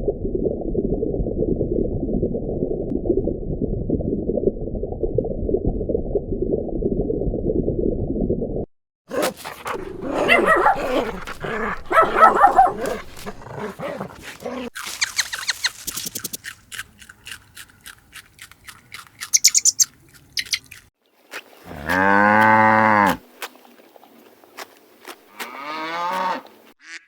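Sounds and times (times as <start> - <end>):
dog barking and growling: 9.1 - 14.9
short high squeaks: 14.8 - 16.4, 19.3 - 20.6
quick clicks: 14.8 - 20.9.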